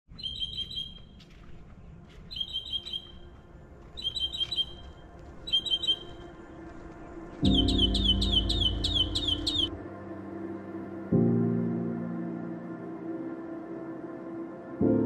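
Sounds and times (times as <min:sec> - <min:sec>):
songbird rapid high chirps: 0:00.1 - 0:01.2, 0:02.3 - 0:03.2, 0:04.0 - 0:04.8, 0:05.4 - 0:06.3, 0:07.4 - 0:09.8.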